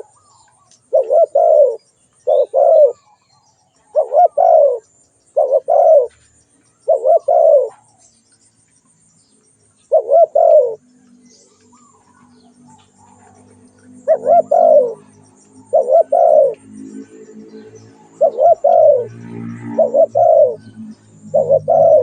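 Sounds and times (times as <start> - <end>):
dove cooing: 0.0 - 0.3, 0.9 - 3.2, 3.8 - 4.8, 5.4 - 6.2, 6.8 - 8.0, 9.9 - 10.8, 11.8 - 22.0.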